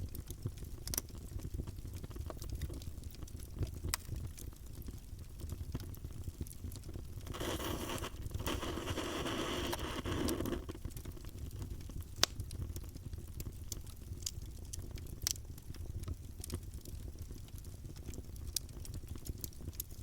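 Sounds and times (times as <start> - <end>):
wood crackling and popping: 0.0 - 20.0
flame rushing: 7.3 - 10.8.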